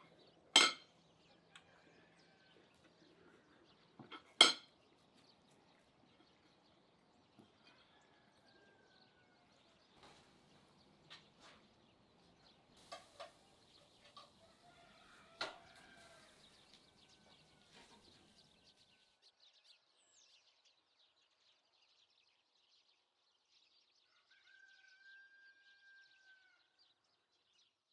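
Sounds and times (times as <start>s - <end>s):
distant birds chirping: 0.0s - 22.5s.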